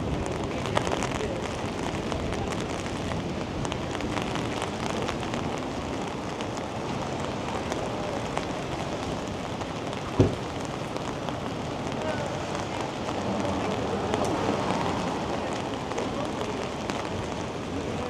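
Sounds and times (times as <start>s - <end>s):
steady rain falling: 0.0s - 18.0s
sharp knock: 10.2s - 10.4s.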